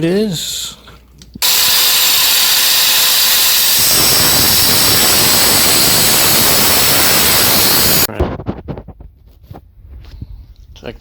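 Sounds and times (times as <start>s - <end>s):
power cutting tool cutting tube: 1.4s - 8.1s.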